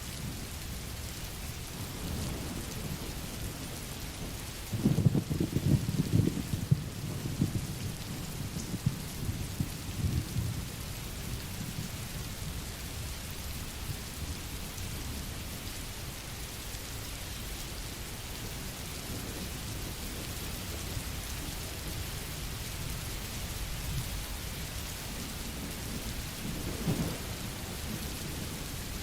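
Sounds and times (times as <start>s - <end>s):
steady rain falling: 0.0s - 29.0s
rolling thunder: 1.9s - 10.8s, 25.1s - 29.0s.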